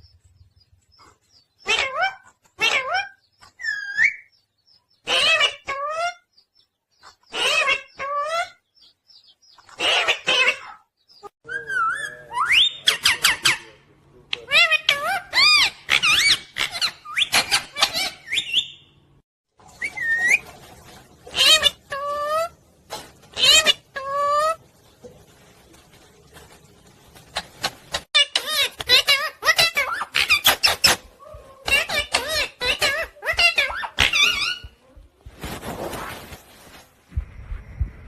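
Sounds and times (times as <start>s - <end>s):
parrot squawking: 1.6s - 4.3s, 5.0s - 6.2s, 7.3s - 8.6s, 9.7s - 18.9s, 21.3s - 22.6s, 23.3s - 24.6s, 27.4s - 34.8s.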